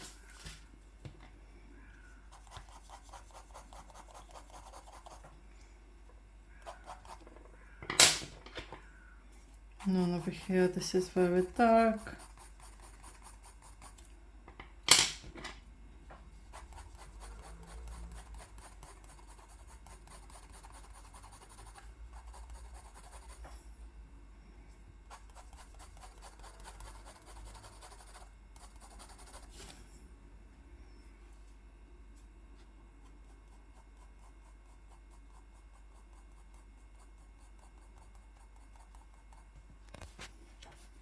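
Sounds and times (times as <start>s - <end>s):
drawing tool rubbing on paper: 2.4s - 5.2s, 9.8s - 14.0s, 16.6s - 23.4s, 25.1s - 29.6s.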